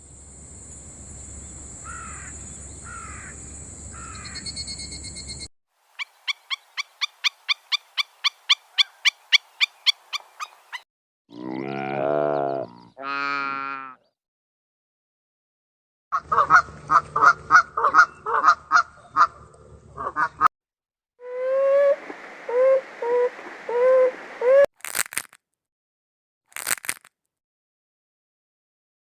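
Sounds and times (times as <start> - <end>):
waterfowl honking: 16.2 - 19.4, 20.0 - 20.5.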